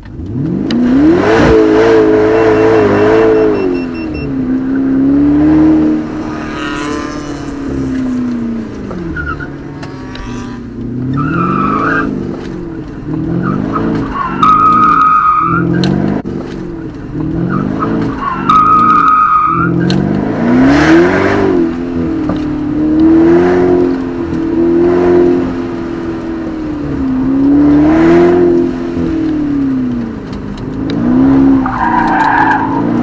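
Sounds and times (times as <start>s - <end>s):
car engine revving in cabin: 0.0s - 33.0s
tyres squealing: 13.3s - 15.8s.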